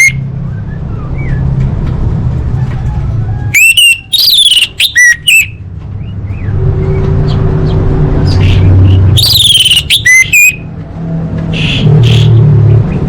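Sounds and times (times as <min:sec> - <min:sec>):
thrush whistled call: 0:03.6 - 0:05.6, 0:08.3 - 0:10.6.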